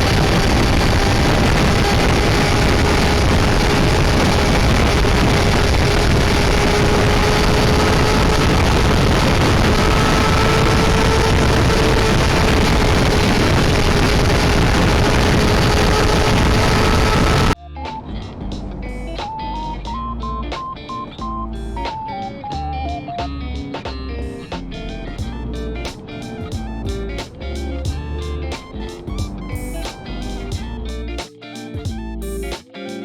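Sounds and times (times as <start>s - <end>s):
motorcycle engine whining at high revs: 0.0s - 18.2s
wind noise on microphone: 0.0s - 20.4s.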